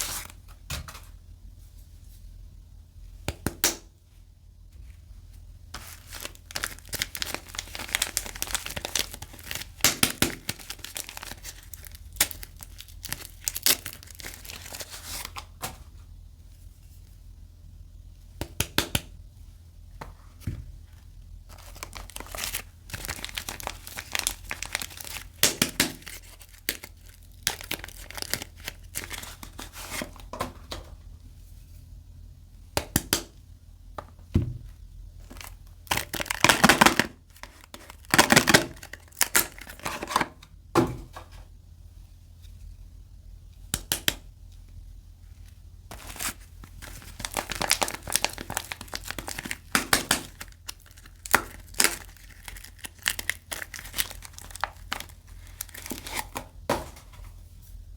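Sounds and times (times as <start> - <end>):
wrapping crinkling and tearing: 5.8 - 15.6, 21.5 - 30.3, 35.2 - 40.3, 45.4 - 56.6.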